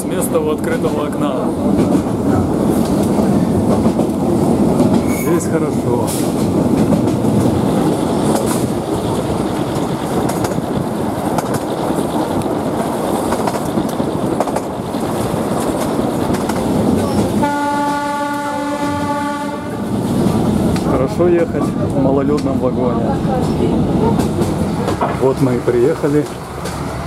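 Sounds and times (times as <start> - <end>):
train wheel and rail noise: 0.0 - 27.0
locomotive horn blast: 17.4 - 19.8.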